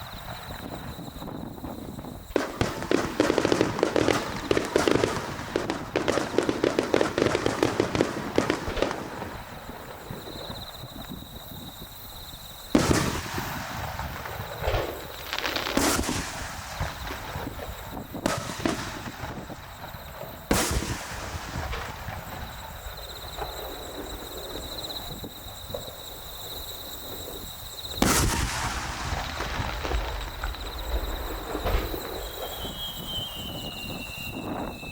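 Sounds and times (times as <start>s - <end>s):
firework shells booming: 0.0s - 12.0s, 12.6s - 34.9s
firework crackle and rumble: 0.0s - 34.9s.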